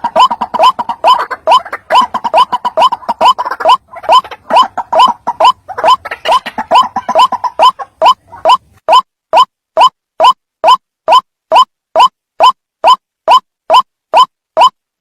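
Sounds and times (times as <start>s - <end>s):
bird croaking call: 0.0s - 8.7s.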